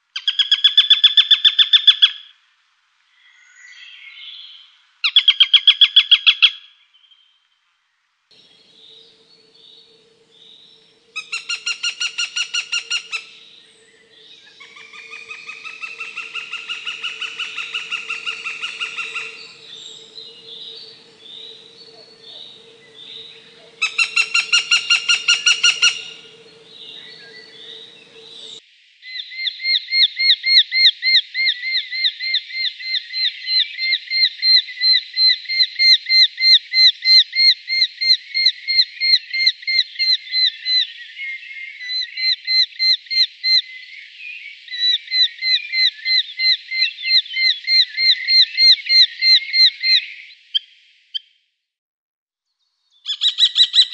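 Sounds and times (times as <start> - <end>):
faint steady hum: 7.4 - 28.6
falcon rapid repeated calls: 11.2 - 13.4, 14.6 - 21.0, 22.0 - 28.4
hawk long wailing call: 11.2 - 28.6
hawk kek-kek calls: 21.9 - 26.7.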